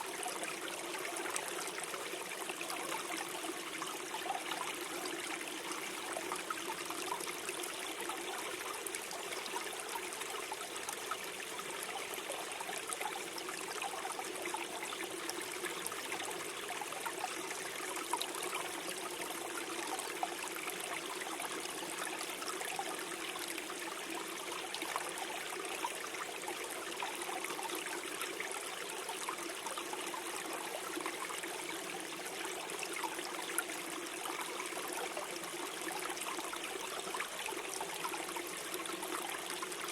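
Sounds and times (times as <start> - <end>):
stream flowing over stones: 0.0 - 39.9
water splashes and trickles: 0.0 - 39.9.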